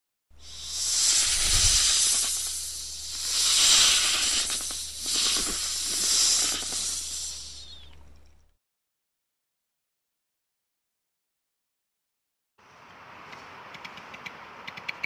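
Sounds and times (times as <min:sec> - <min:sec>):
animal hissing: 0:00.3 - 0:08.2.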